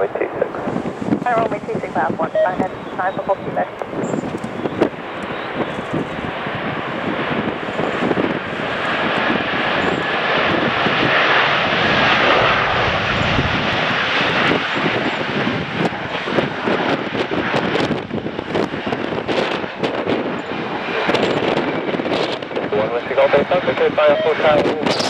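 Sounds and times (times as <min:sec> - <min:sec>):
jet engines roaring: 0:00.0 - 0:25.0
wind buffeting microphone: 0:00.0 - 0:25.0.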